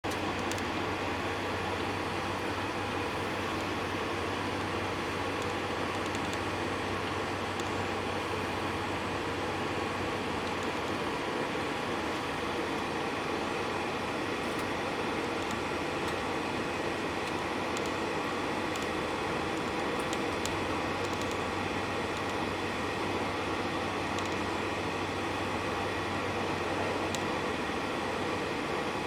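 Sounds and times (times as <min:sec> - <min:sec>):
faint clicks and rattles: 0:00.1 - 0:00.8, 0:05.2 - 0:06.6, 0:07.5 - 0:07.8, 0:10.3 - 0:11.0, 0:14.5 - 0:22.5.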